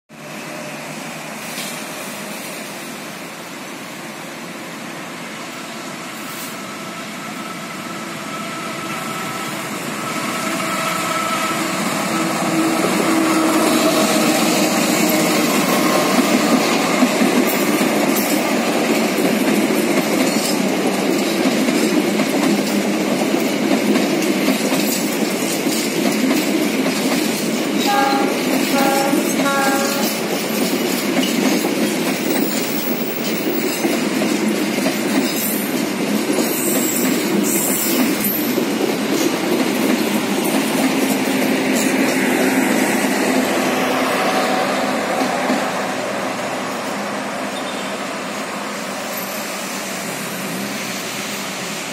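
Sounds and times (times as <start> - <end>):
train wheels clattering on rails: 8.9 - 51.9
train horn toots: 27.8 - 30.4.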